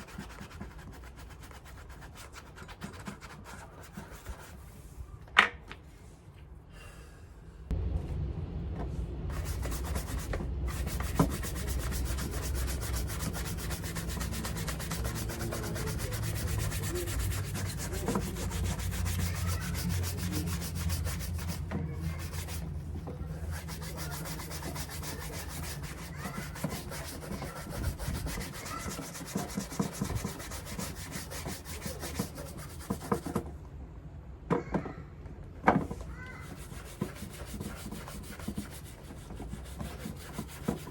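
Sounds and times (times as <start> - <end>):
rubbing strokes on leather shoe: 9.4 - 22.7, 23.4 - 33.3, 36.4 - 40.9.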